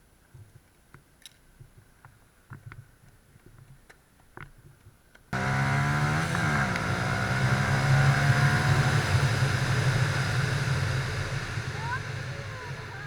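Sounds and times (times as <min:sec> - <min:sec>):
motorcycle engine running: 0:05.4 - 0:13.0.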